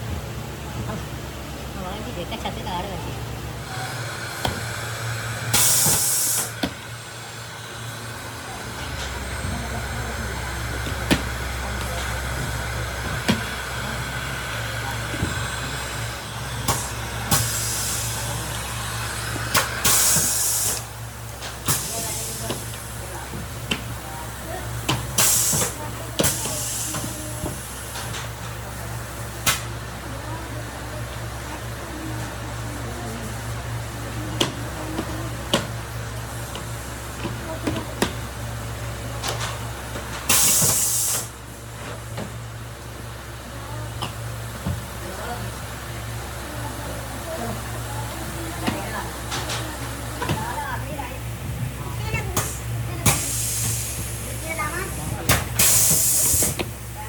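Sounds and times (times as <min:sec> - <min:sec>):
low machine hum: 0:00.0 - 0:40.2
hiss: 0:03.7 - 0:06.6, 0:15.7 - 0:20.9, 0:21.7 - 0:23.1, 0:25.0 - 0:27.9, 0:40.3 - 0:41.4, 0:52.4 - 0:56.8.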